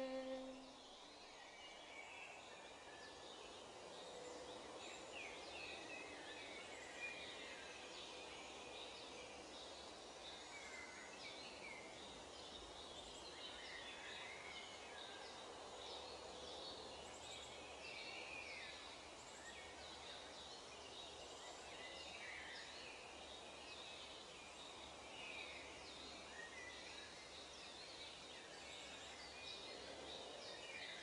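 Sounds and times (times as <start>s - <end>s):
steady hiss: 0.0s - 0.7s.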